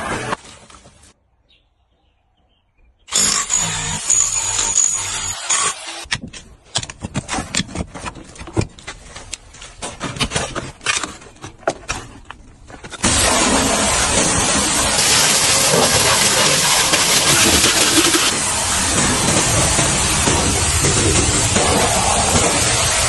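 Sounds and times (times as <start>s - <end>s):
pressure washer spraying water: 13.0s - 23.0s.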